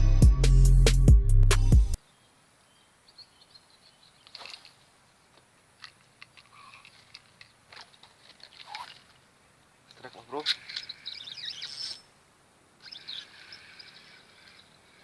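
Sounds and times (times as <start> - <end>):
high bird chirps: 10.6 - 12.1, 12.8 - 14.8.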